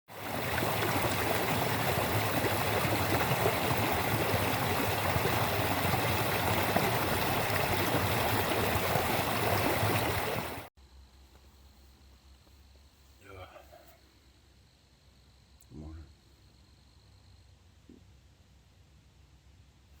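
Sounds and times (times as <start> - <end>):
river water rushing and gurgling: 0.1 - 10.7.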